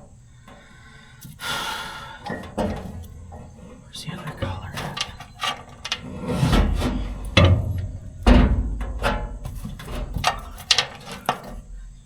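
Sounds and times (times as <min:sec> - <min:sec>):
metal parts clanking: 0:02.2 - 0:11.7.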